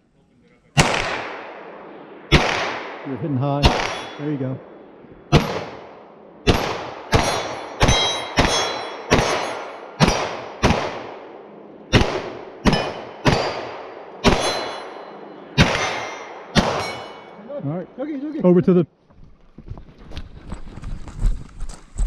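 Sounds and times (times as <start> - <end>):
rifle shots: 0.8 - 17.4
steel target clanging: 3.6 - 5.7, 6.5 - 10.6, 12.6 - 17.5.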